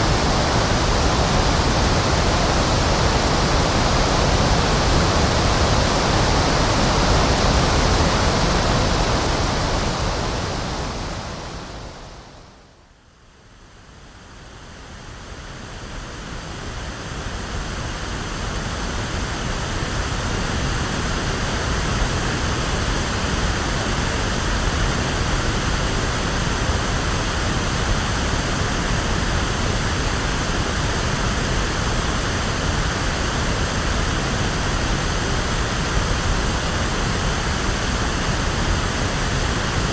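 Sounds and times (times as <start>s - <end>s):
pink noise hiss: 0.0s - 12.6s.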